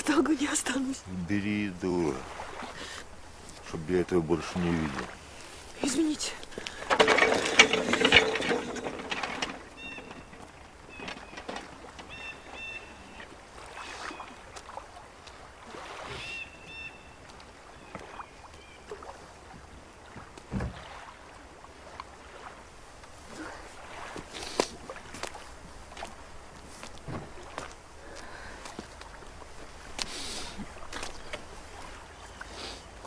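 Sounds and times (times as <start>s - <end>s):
shore ambience: 0.0s - 33.0s
faint high bird calls: 9.7s - 13.2s, 16.1s - 19.0s.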